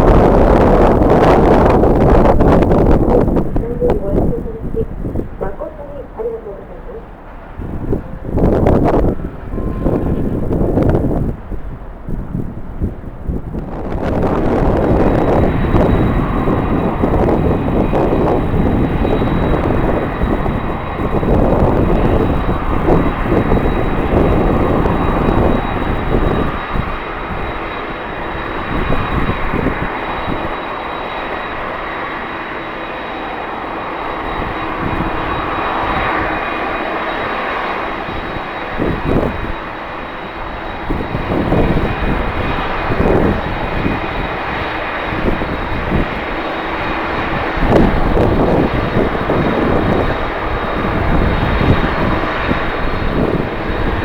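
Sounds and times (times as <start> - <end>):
wind buffeting microphone: 0.0 - 32.5, 33.1 - 54.0
jet engines whining: 0.0 - 54.0.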